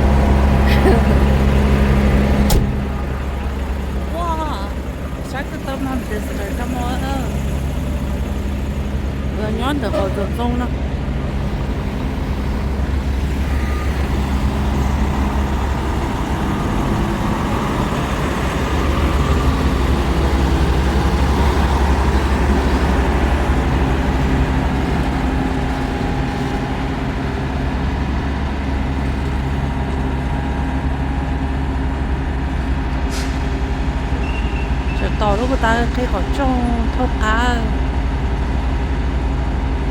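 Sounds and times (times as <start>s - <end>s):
road noise: 0.0s - 39.9s
truck engine drone: 0.0s - 39.9s.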